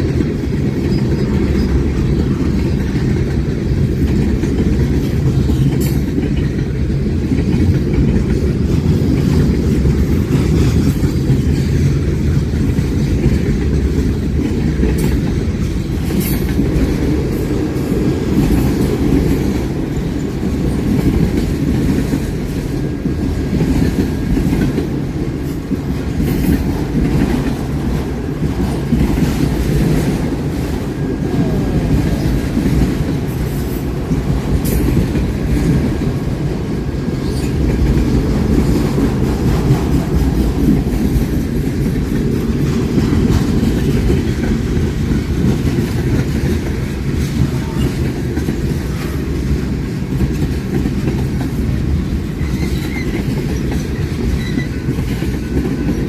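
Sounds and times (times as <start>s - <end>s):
train cars rumbling past: 0.0s - 56.0s
wheels clacking over rail joints: 0.0s - 56.0s.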